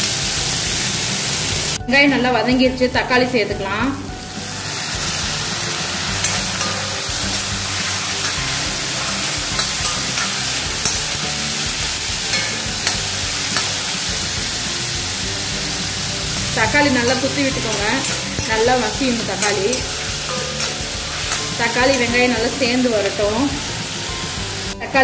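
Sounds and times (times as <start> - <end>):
vegetables sizzling in hot oil: 0.0 - 1.8, 4.1 - 24.8
spatula scraping pan: 4.9 - 24.5.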